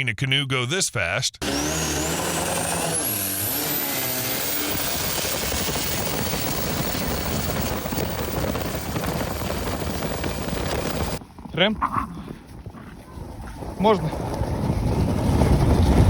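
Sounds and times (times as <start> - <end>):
motorboat engine whine: 1.4 - 11.2.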